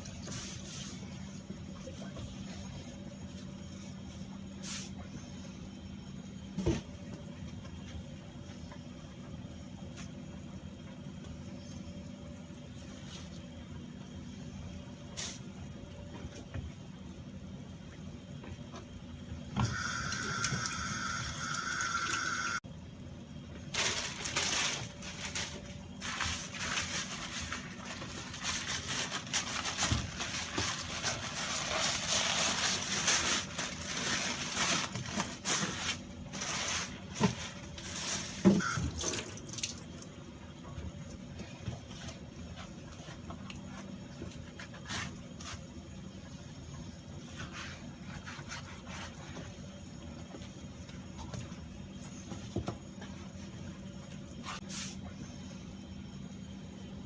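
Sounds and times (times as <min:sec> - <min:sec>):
tap water running and splashing: 0:38.6 - 0:40.1.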